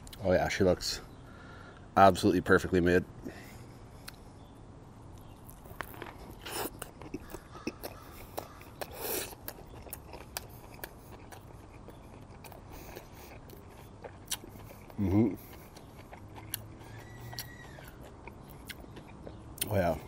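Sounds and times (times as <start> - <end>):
person chewing: 4.0 - 4.2, 5.1 - 20.0
biting into a burger: 5.2 - 19.8.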